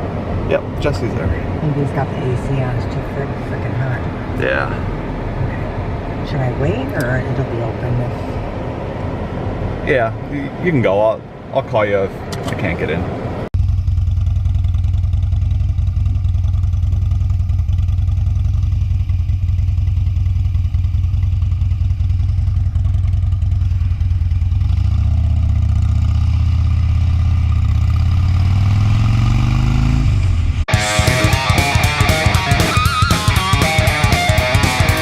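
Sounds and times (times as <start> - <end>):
motorcycle engine idling and revving: 13.2 - 35.0.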